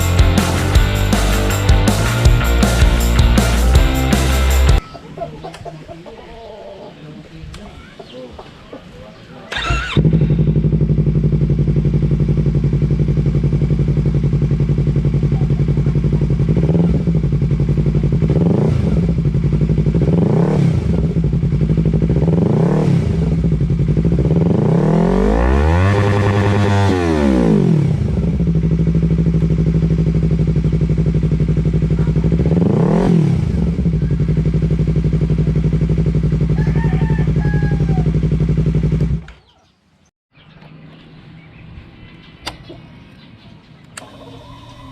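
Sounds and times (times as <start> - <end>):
motorcycle engine idling and revving: 0.0 - 4.8, 9.5 - 39.6.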